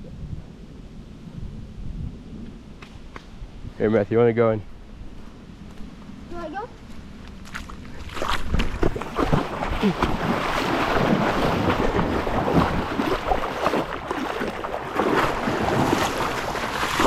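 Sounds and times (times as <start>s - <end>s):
water splashing and sloshing: 7.3s - 17.0s.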